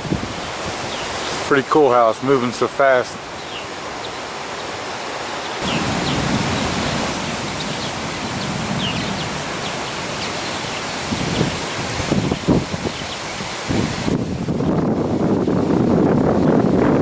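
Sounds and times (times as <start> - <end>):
wind buffeting the microphone: 0.0 - 1.6, 5.6 - 17.0
wind blowing with a hiss: 0.0 - 17.0
faint bird chirps: 7.5 - 11.5.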